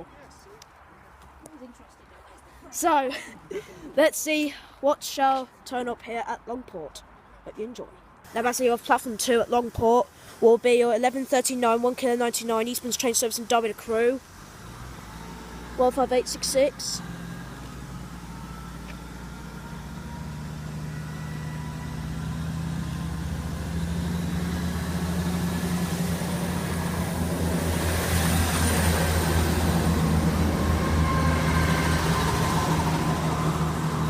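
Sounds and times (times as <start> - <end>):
diesel train engines droning: 8.3 - 34.0.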